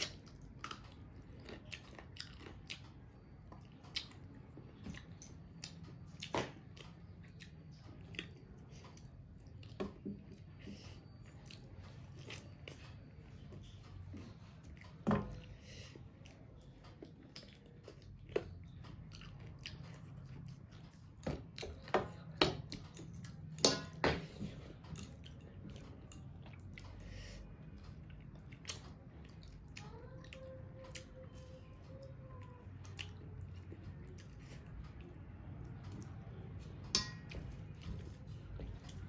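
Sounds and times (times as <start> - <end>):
chewing chicken on the bone: 0.0 - 15.5.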